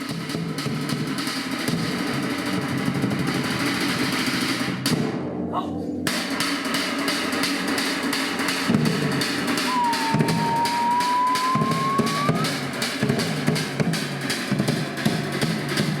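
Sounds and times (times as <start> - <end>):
music with drums and guitar: 6.1 - 16.0.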